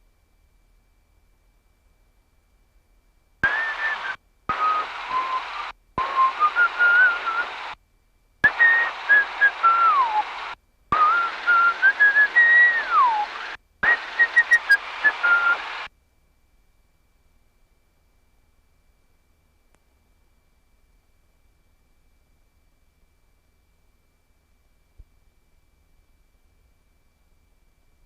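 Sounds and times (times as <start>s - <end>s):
radio hiss: 3.4s - 7.8s, 8.4s - 15.9s
whistling over radio: 3.4s - 7.8s, 8.4s - 15.9s.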